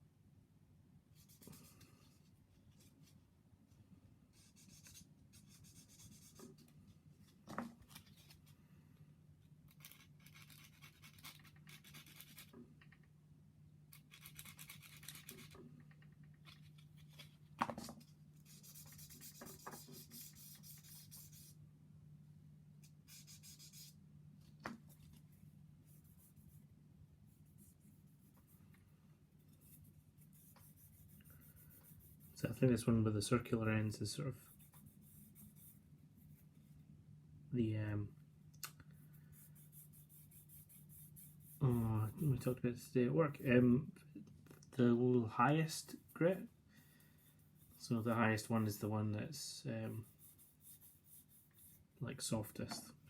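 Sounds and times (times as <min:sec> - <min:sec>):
faint low hum: 0:00.0 - 0:53.0
sanding stick scratching plastic: 0:09.8 - 0:12.6, 0:18.4 - 0:21.5, 0:49.8 - 0:51.8.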